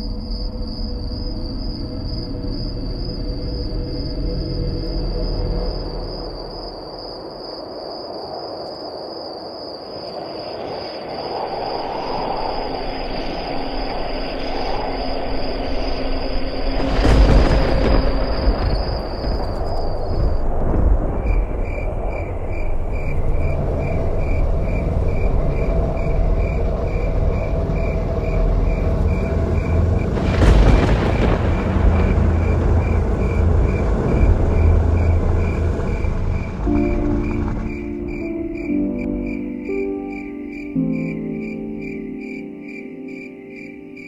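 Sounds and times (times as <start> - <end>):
rushing noise: 9.9 - 40.2
low rumble: 12.2 - 39.4.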